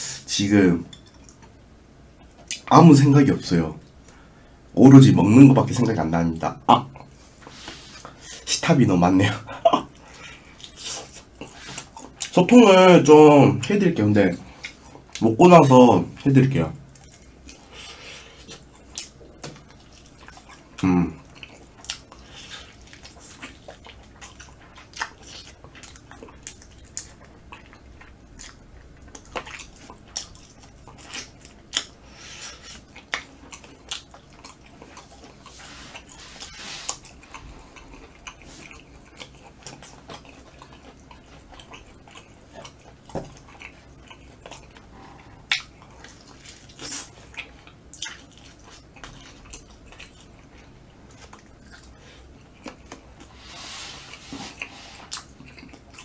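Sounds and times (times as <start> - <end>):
chewing and biting meat: 16.9 - 53.4, 54.1 - 56.0.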